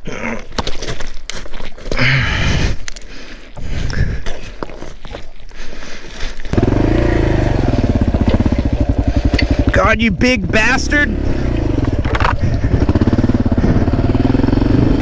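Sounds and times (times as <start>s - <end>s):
person grunting: 2.0s - 2.7s
motorcycle engine revving: 6.5s - 15.0s.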